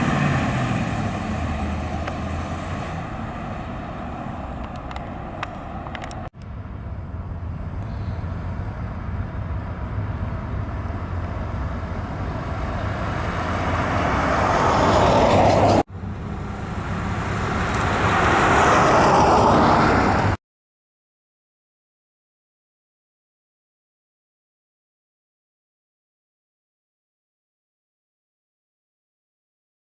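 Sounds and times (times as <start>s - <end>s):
car engine running while driving: 0.0s - 18.9s.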